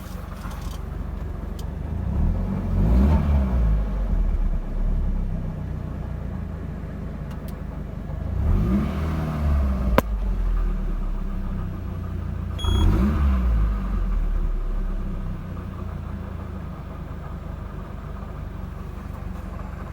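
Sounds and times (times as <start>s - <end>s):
car engine revving: 1.8s - 5.6s, 8.2s - 19.9s.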